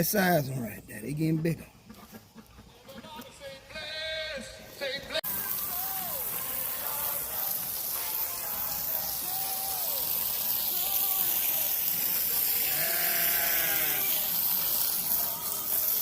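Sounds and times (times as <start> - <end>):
steady high hiss: 0.0 - 1.4, 4.6 - 16.0
livestock bleating: 12.6 - 14.3.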